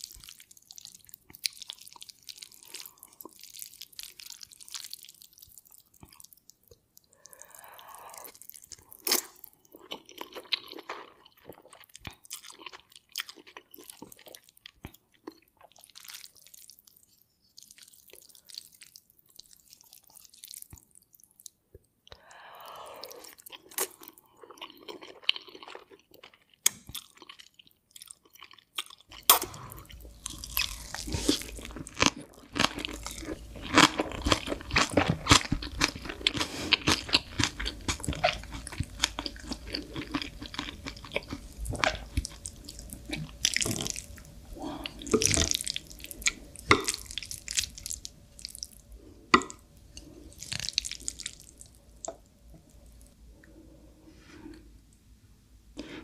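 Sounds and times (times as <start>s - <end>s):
wet chewing and crunching: 0.0s - 21.9s, 23.2s - 53.2s.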